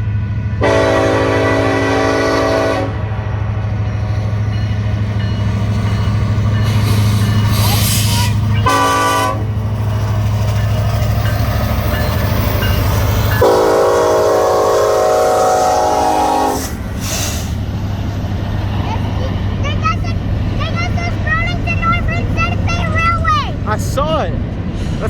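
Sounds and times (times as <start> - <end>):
diesel locomotive rumbling: 0.0 - 25.0
train air horn blasts: 0.6 - 3.3, 7.5 - 9.6, 13.4 - 17.5.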